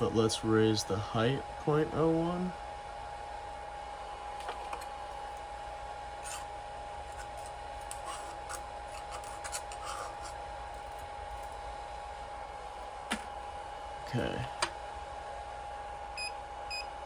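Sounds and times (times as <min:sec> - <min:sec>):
three-d printer whine and hum: 0:00.0 - 0:17.0
small clicks and scraping: 0:07.1 - 0:11.6.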